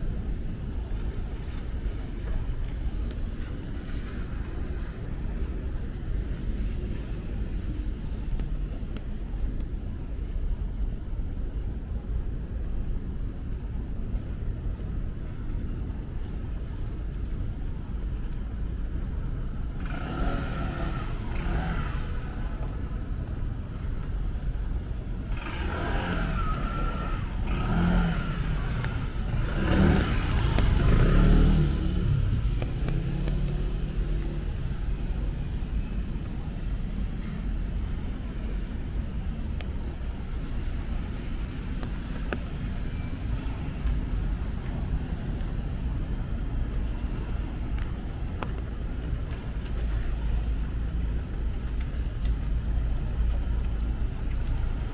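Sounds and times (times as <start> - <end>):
traffic hum on wet road: 0.0 - 54.9
cars passing: 16.3 - 54.9.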